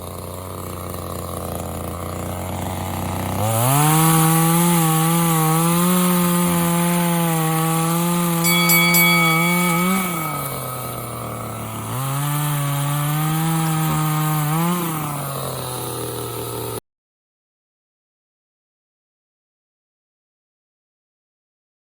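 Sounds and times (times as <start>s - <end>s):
chainsaw cutting wood: 0.0s - 16.8s.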